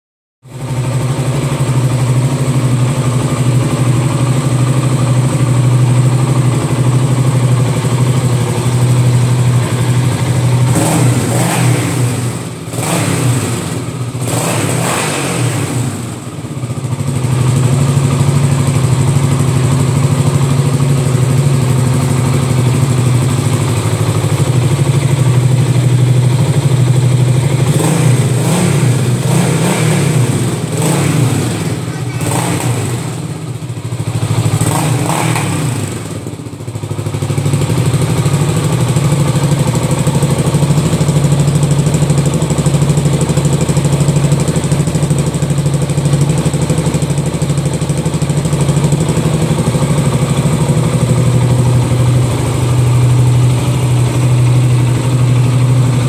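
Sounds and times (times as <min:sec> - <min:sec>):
motorcycle engine idling and revving: 0:00.4 - 0:56.0.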